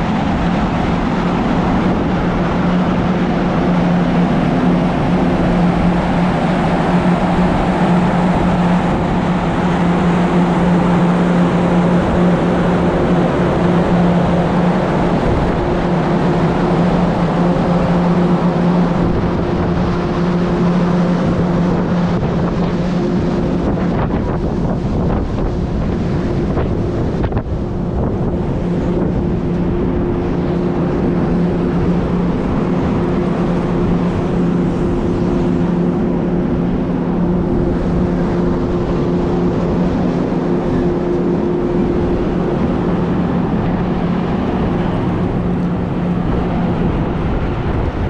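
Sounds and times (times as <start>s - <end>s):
ferry engines droning: 0.0s - 48.0s
rushing water: 0.0s - 48.0s
rushing wind: 0.0s - 48.0s.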